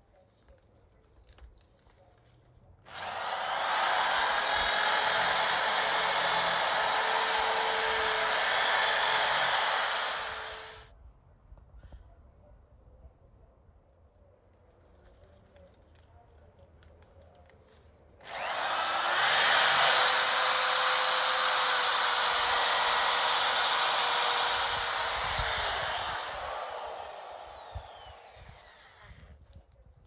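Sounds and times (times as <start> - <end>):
power tool motor spinning: 2.9 - 10.9, 18.2 - 29.3.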